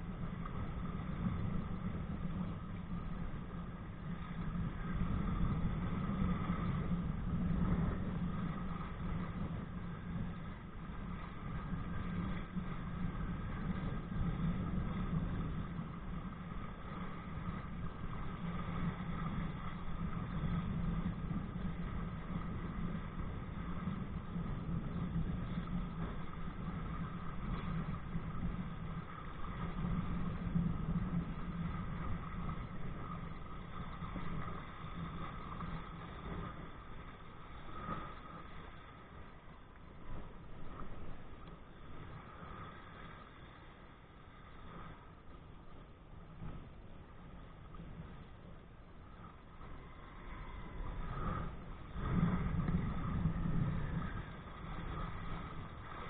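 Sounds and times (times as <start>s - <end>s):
wind and water rushing: 0.0s - 56.0s.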